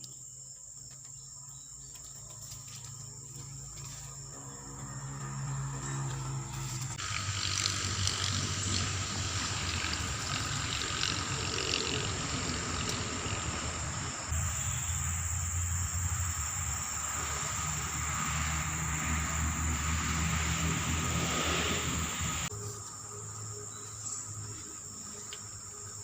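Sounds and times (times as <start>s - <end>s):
insects chirring: 0.0s - 26.0s
hiss of water or wind: 17.2s - 22.5s.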